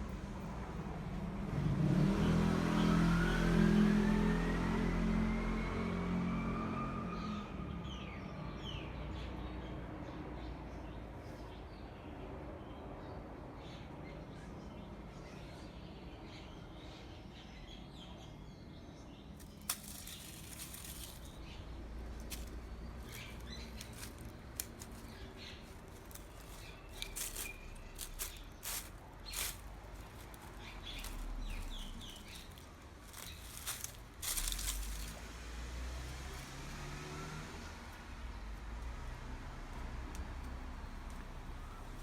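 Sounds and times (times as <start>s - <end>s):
short rustles and clicks: 19.4s - 21.5s, 22.2s - 35.2s
steady low rumble: 19.5s - 35.6s.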